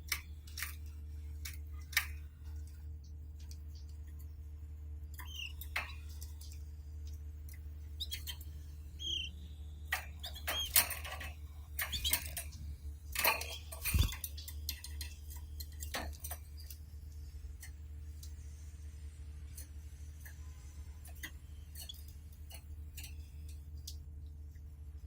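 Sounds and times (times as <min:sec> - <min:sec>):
clicks and taps in bird cage: 0:00.1 - 0:04.4, 0:05.1 - 0:08.4, 0:09.9 - 0:18.4, 0:21.0 - 0:24.0
high bird chirps: 0:05.2 - 0:05.7, 0:07.9 - 0:10.8, 0:11.8 - 0:12.4.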